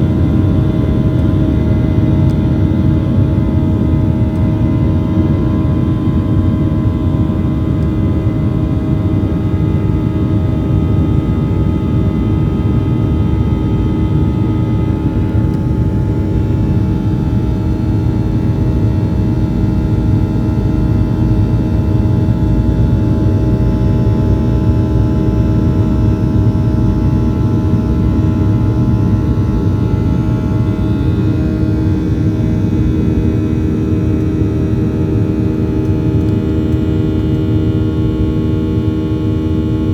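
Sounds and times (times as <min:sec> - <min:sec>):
airliner cabin engine rush: 0:00.0 - 0:39.9
steady tonal hum: 0:12.2 - 0:39.9.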